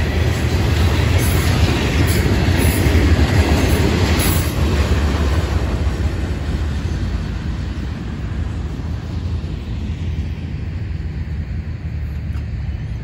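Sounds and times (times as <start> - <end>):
freight train wheels rumbling on track: 0.0 - 13.0.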